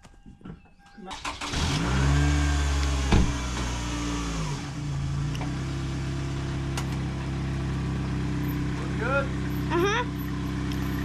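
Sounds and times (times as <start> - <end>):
car engine running: 1.3 - 11.0.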